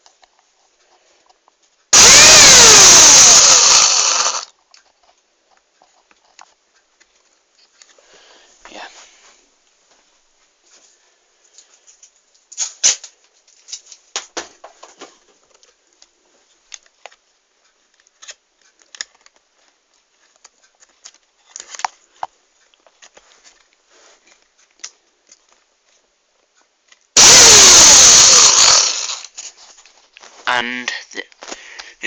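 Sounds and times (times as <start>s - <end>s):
objects being handled clicking: 16.7s - 27.1s.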